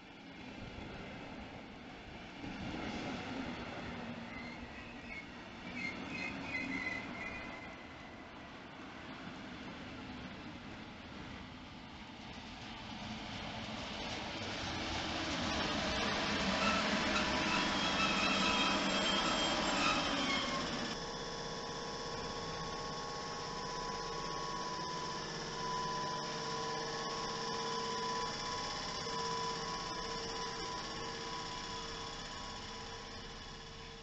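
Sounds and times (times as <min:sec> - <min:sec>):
train rumbling: 0:00.0 - 0:34.0
high whine: 0:15.3 - 0:34.0
high squealing tones: 0:16.6 - 0:21.0.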